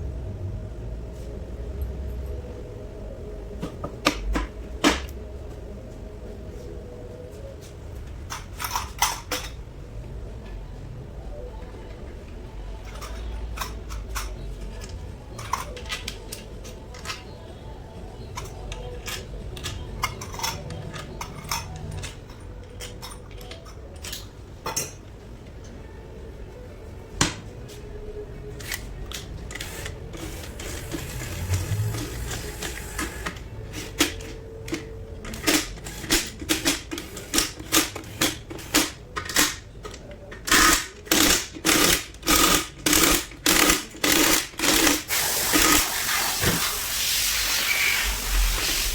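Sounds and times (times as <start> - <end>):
metal parts and tools clinking: 12.8 - 17.3, 18.4 - 25.1, 28.5 - 45.8.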